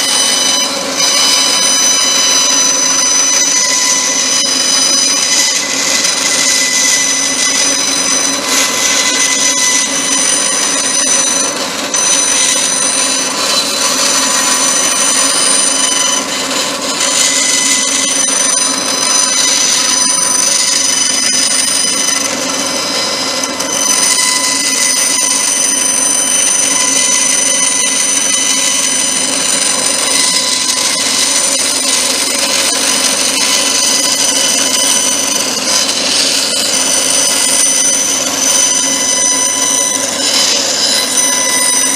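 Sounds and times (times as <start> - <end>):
power tool whining: 0.0 - 41.9.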